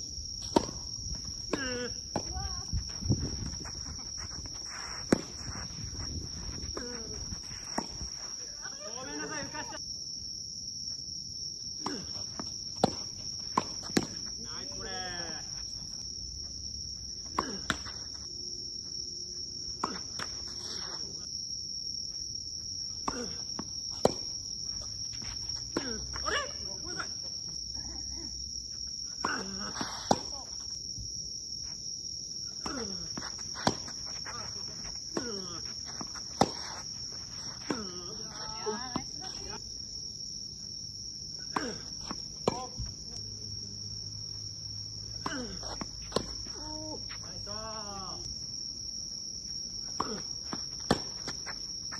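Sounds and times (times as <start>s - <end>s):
tennis ball struck with racket: 36.4s - 36.8s, 50.0s - 51.2s.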